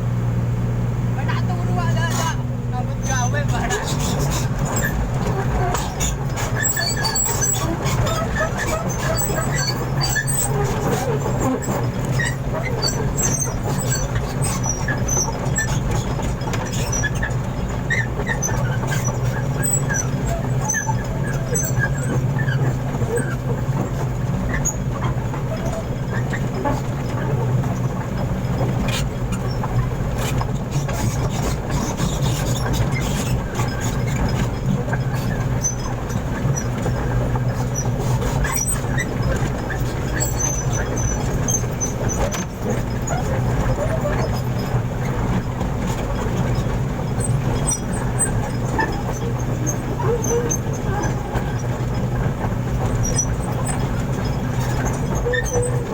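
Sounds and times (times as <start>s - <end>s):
truck engine idling: 0.0s - 55.9s.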